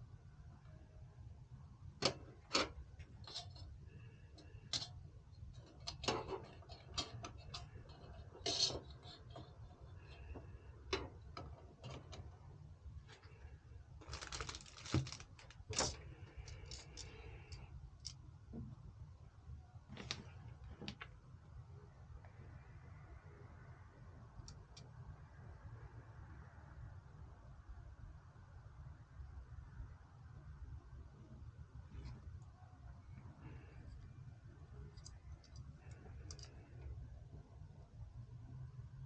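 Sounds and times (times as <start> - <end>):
steady low hum: 0.0 - 39.0
hardware parts clicking and tapping: 1.9 - 12.5, 14.0 - 18.8, 34.7 - 37.0.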